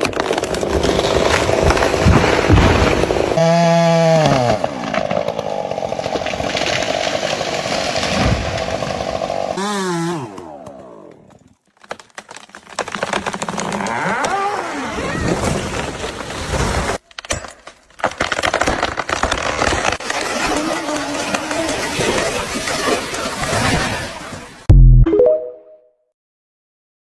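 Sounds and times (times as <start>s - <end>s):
wood cracking and snapping: 0.0s - 3.4s, 4.2s - 9.6s, 10.3s - 23.3s
chainsaw revving and cutting: 1.0s - 11.3s, 13.5s - 14.9s.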